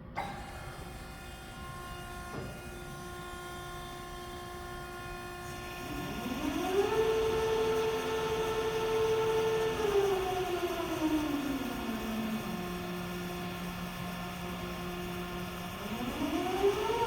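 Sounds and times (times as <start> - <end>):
machine hum: 0.0 - 17.0
band saw motor whine: 0.2 - 17.0.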